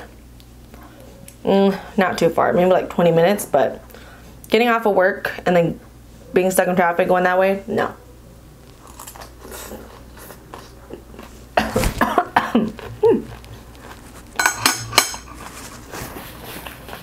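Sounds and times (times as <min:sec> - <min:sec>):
chewing food: 0:08.6 - 0:11.6, 0:12.5 - 0:14.4.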